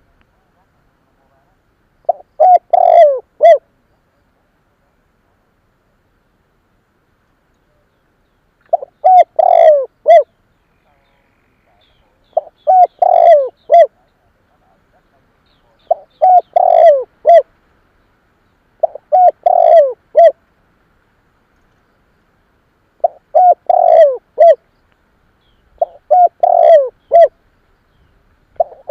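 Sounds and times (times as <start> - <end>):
dove cooing: 2.1 - 3.7, 8.7 - 10.3, 11.7 - 17.6, 18.8 - 20.4, 23.0 - 24.6, 25.7 - 27.4, 28.5 - 28.9.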